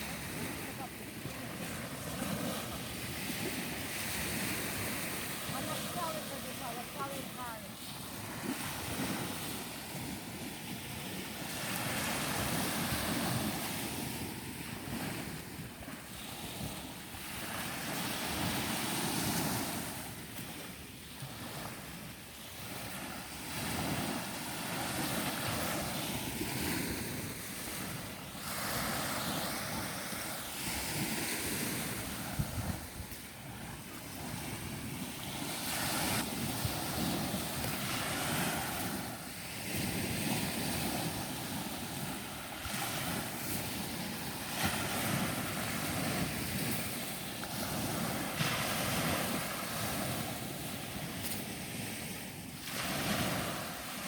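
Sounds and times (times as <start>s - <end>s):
ocean surf on beach: 0.0s - 54.0s
wind buffeting microphone: 22.6s - 52.2s.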